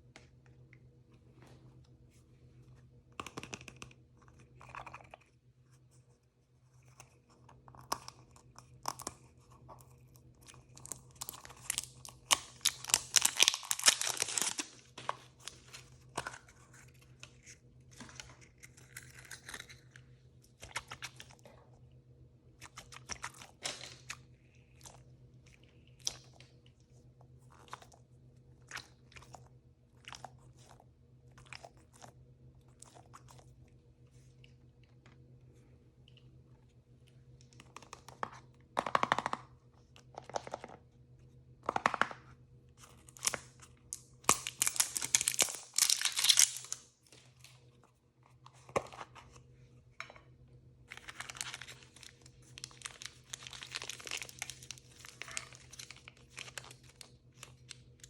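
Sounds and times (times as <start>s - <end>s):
plastic wrapper crinkling and tearing: 10.6s - 20.0s, 42.8s - 47.6s, 50.9s - 58.0s.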